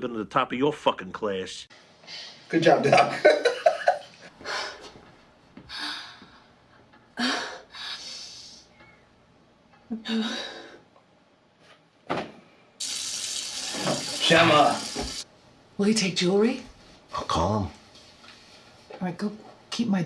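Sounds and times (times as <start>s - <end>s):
person speaking: 14.0s - 15.2s.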